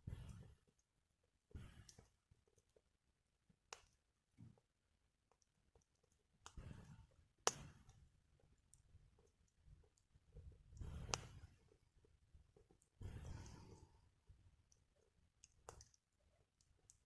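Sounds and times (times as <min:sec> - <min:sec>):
wood fire crackling: 0:06.4 - 0:14.0.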